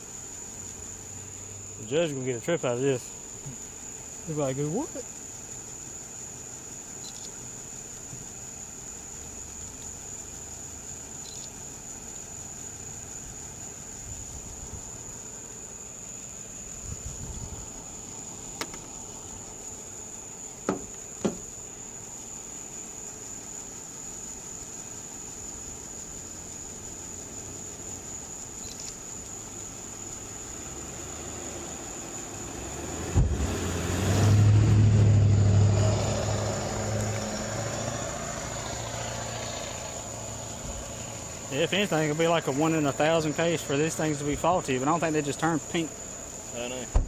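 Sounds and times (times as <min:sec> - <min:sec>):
knock: 0:20.6 - 0:21.4
vehicle passing by: 0:30.7 - 0:43.5.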